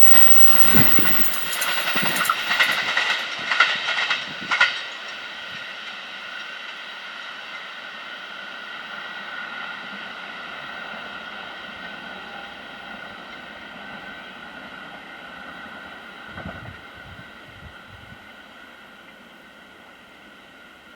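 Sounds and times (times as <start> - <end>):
train rumble: 0.0 - 8.1
high ringing hum from rails: 0.0 - 20.9.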